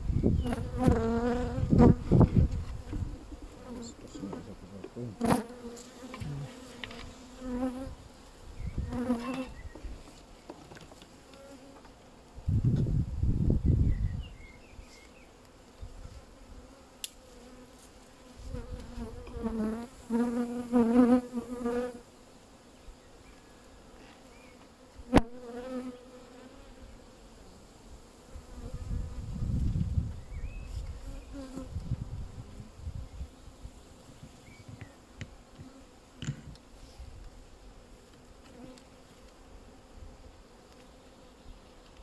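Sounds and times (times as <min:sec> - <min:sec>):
honeybees buzzing: 0:00.0 - 0:09.8, 0:16.1 - 0:22.2, 0:24.3 - 0:29.6.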